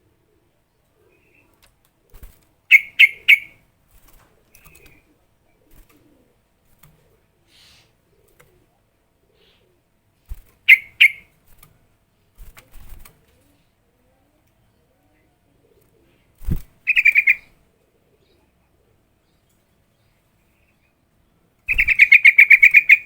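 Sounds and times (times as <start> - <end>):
bird calling: 2.7 - 3.6, 10.6 - 11.3, 16.9 - 17.5, 21.7 - 23.0.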